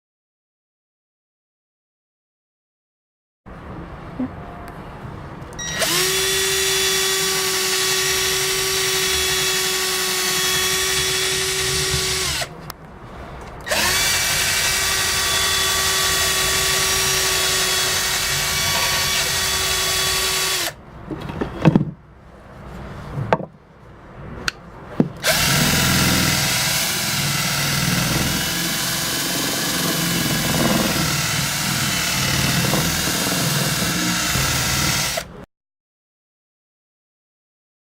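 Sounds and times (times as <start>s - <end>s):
power drill with sanding wheel: 5.6s - 12.5s, 13.7s - 20.8s, 25.2s - 35.3s
knocks: 21.1s - 22.0s, 23.2s - 23.6s, 25.0s - 25.2s.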